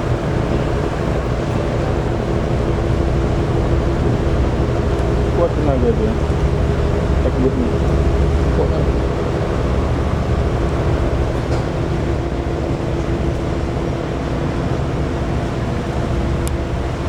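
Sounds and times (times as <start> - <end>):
constant hum: 0.0 - 17.0
diesel engines droning: 0.0 - 17.0.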